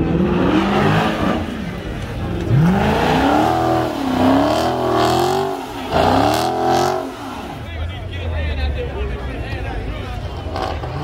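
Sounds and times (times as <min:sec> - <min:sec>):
car engine revving: 0:00.0 - 0:07.8, 0:10.3 - 0:11.0.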